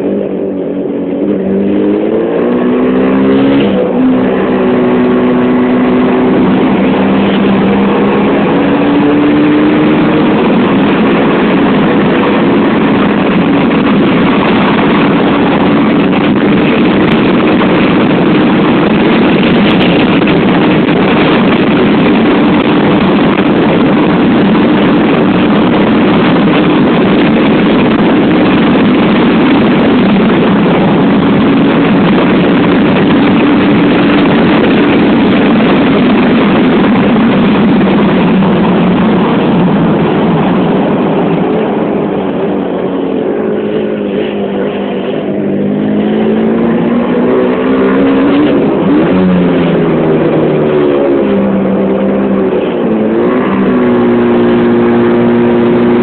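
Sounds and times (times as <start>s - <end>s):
motorcycle engine cruising: 0.0s - 56.0s
wind rush over microphone: 0.0s - 56.0s.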